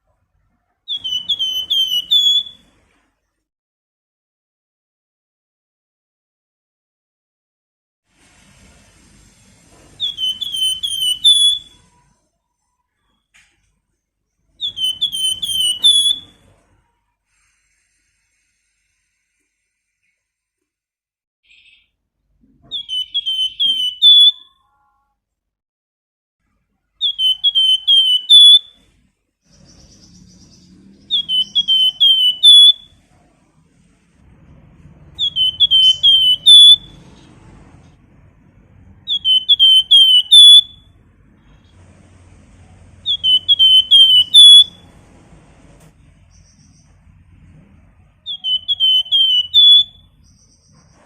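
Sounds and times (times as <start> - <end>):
songbird whistling: 0.9 - 2.7, 10.0 - 12.0, 14.5 - 16.5, 21.4 - 21.9, 22.6 - 24.6, 27.0 - 28.9, 29.5 - 33.1, 35.1 - 37.2, 39.0 - 41.0, 43.0 - 44.9, 48.2 - 51.0.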